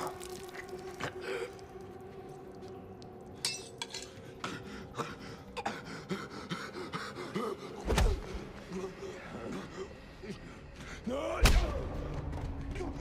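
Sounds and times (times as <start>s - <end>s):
clinks and sharp knocks: 3.4s - 4.2s.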